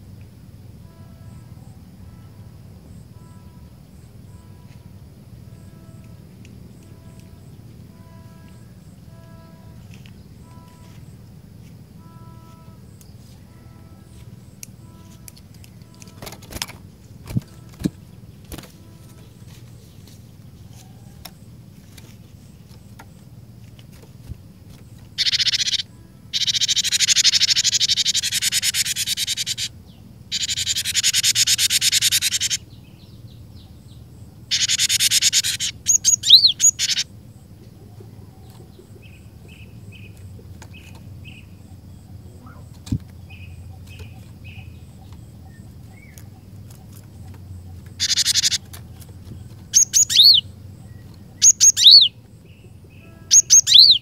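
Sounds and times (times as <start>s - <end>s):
bird buzzing churr: 0.8s - 54.0s
bird whistled notes: 25.2s - 29.7s, 30.3s - 32.6s, 34.5s - 37.0s, 48.0s - 48.6s, 49.8s - 50.5s, 51.4s - 52.2s, 53.0s - 54.0s.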